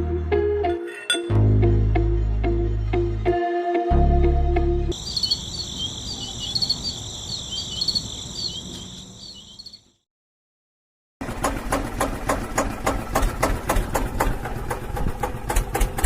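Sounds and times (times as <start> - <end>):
crickets chirping: 4.9 - 10.0.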